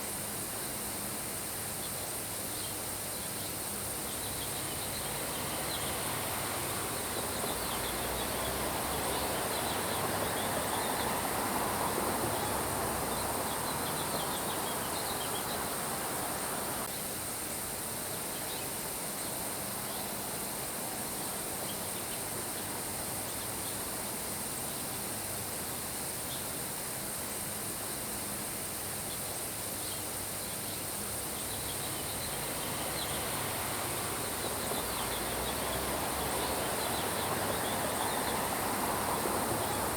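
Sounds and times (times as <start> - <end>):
high insect drone: 0.0 - 39.9
steady rain: 32.3 - 39.9.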